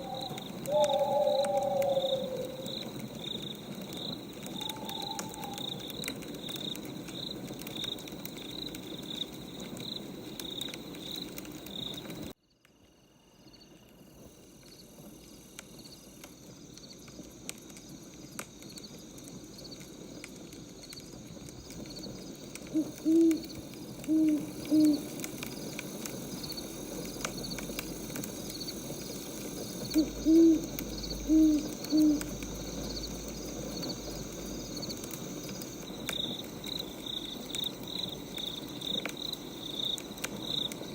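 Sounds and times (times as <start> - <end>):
owl hooting: 0.0 - 3.0, 4.4 - 6.0, 22.7 - 25.3, 29.8 - 32.5
crickets chirping: 0.0 - 40.9.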